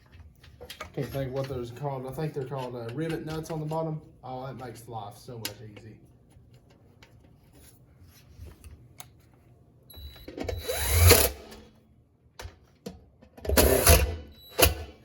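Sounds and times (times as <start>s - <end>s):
power drill whining: 10.4s - 11.6s, 13.5s - 15.0s.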